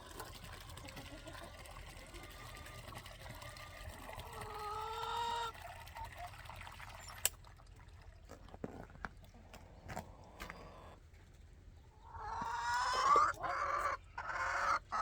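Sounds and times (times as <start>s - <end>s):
water pouring into container: 0.0s - 8.7s.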